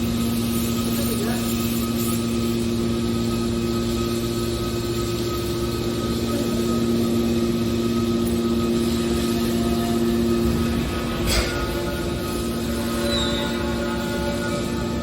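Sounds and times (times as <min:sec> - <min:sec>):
hydraulic baler humming: 0:02.2 - 0:15.0.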